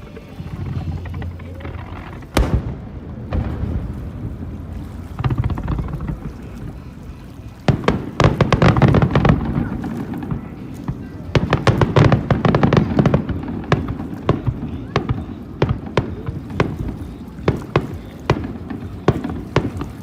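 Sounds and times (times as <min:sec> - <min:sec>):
low rumble: 0:00.0 - 0:07.8
crackling bangs: 0:00.0 - 0:20.0
fireworks bursting: 0:00.0 - 0:20.0.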